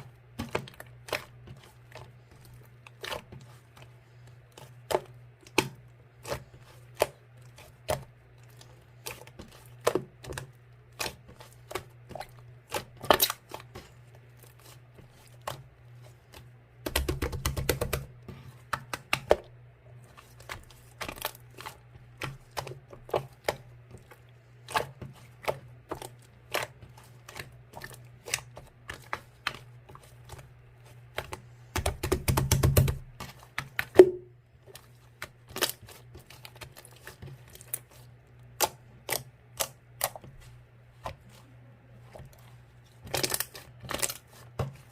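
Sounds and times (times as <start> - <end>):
slime crackling rapidly: 0.0 - 19.4, 24.7 - 34.1, 34.7 - 44.9.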